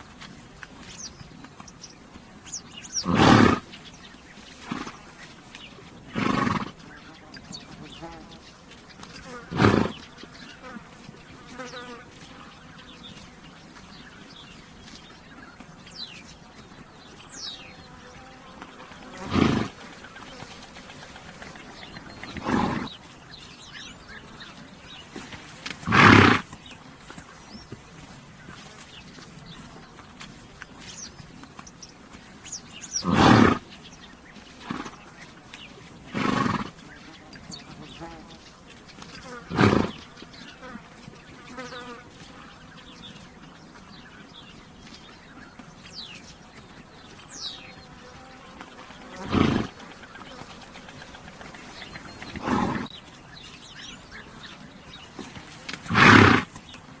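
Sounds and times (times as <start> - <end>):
bird chirps: 0.8 - 27.8, 28.4 - 56.9
flies buzzing: 2.5 - 31.1, 31.7 - 43.4, 46.4 - 57.0
horse breath: 2.7 - 7.1, 19.1 - 29.5, 50.5 - 53.2
horse blowing air: 2.9 - 3.8, 6.1 - 6.8, 9.5 - 10.0, 19.2 - 23.1, 25.0 - 26.6, 32.9 - 33.7, 36.1 - 36.8, 39.5 - 40.0, 49.2 - 49.8, 51.4 - 53.0, 55.2 - 56.6.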